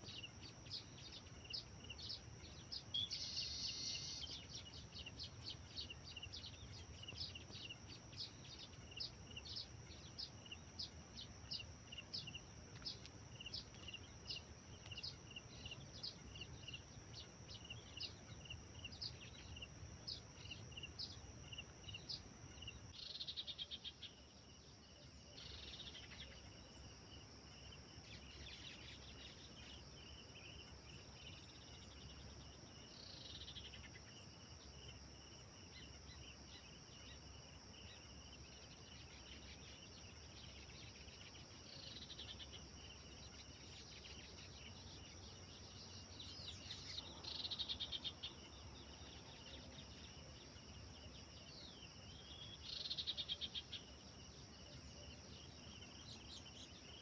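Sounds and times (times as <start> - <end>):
faint bird chirping and trilling: 0.0 - 26.6, 38.7 - 57.0.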